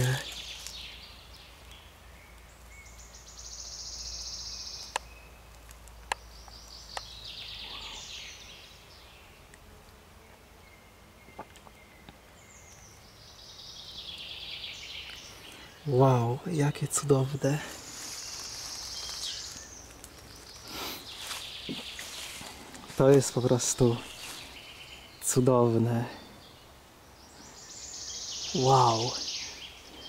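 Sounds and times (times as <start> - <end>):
songbird trilling: 27.4 - 29.8.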